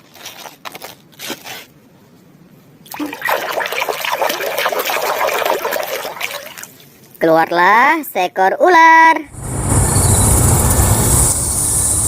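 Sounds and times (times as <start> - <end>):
water splashing: 2.9 - 6.8
running water: 2.9 - 6.9.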